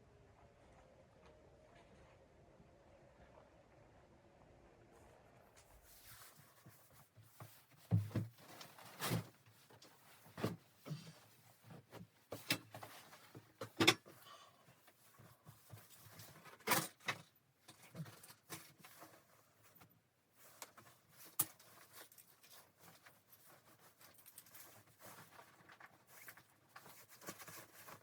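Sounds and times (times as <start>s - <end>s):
objects knocking and rustling: 6.3s - 14.2s, 14.8s - 28.0s.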